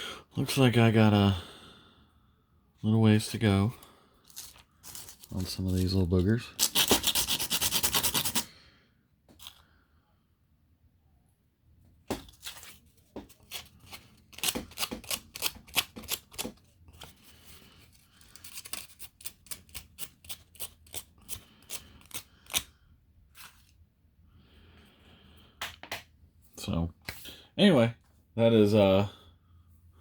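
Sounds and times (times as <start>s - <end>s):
hand tool scraping plastic: 4.3s - 8.5s, 12.4s - 22.7s.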